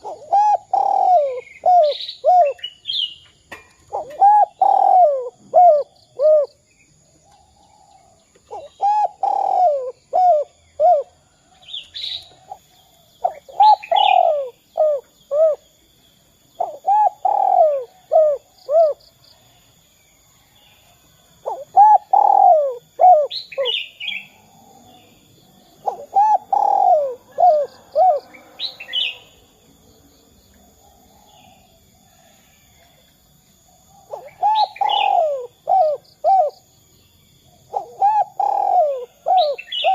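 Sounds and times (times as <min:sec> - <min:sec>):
dove cooing: 0:00.0 - 0:02.8, 0:03.9 - 0:06.6, 0:07.3 - 0:15.7, 0:16.6 - 0:19.0, 0:21.4 - 0:25.2, 0:25.8 - 0:29.4, 0:33.9 - 0:36.7, 0:37.5 - 0:39.9
small birds chirping: 0:00.0 - 0:39.9.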